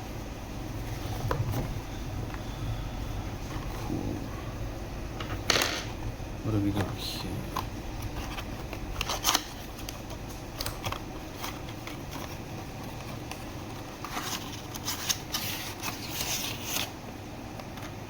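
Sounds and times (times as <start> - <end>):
crinkling paper or plastic: 6.6 - 18.0.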